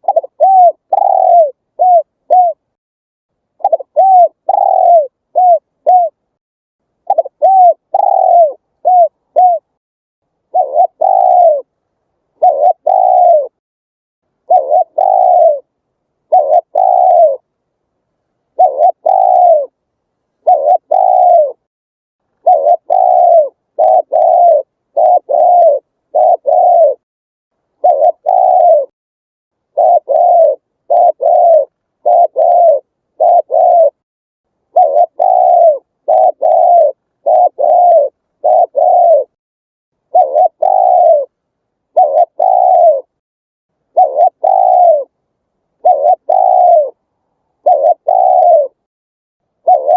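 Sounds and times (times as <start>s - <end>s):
dove cooing: 0.0s - 2.7s, 3.6s - 6.2s, 7.0s - 9.8s, 10.5s - 11.7s, 12.3s - 13.6s, 14.4s - 17.5s, 18.5s - 19.8s, 20.4s - 21.7s, 22.4s - 27.0s, 27.8s - 28.9s, 29.7s - 34.0s, 34.7s - 39.4s, 40.1s - 43.2s, 43.9s - 45.1s, 45.8s - 47.0s, 47.6s - 48.9s, 49.6s - 49.9s.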